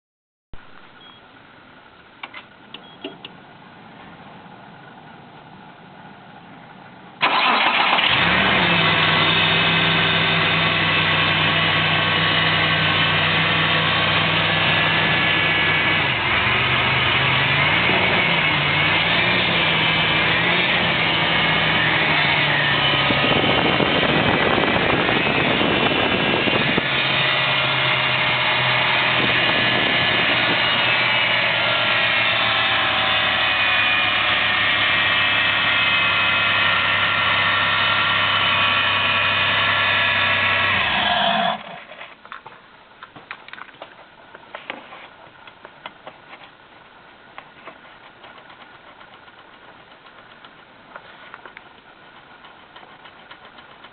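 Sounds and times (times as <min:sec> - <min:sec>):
engine starting and idling: 0:07.2 - 0:14.6, 0:39.8 - 0:42.1, 0:52.1 - 0:53.9.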